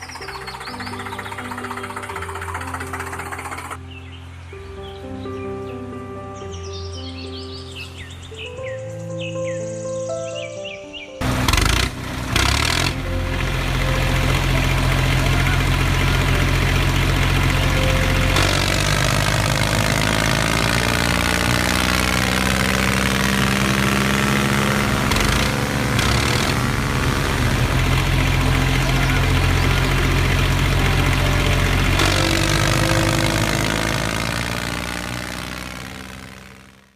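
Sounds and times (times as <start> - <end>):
tractor engine running: 0.0 - 3.8, 11.2 - 36.9.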